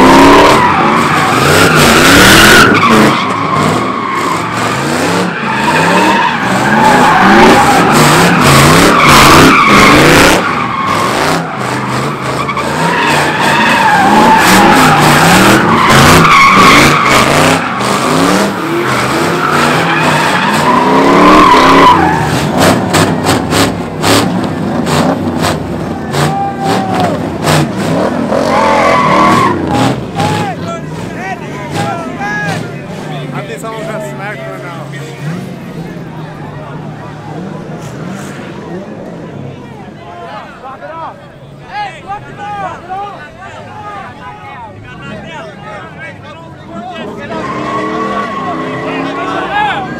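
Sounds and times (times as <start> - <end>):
tyres screeching: 0.0 - 36.2, 47.0 - 49.9
car engine revving: 0.0 - 39.5.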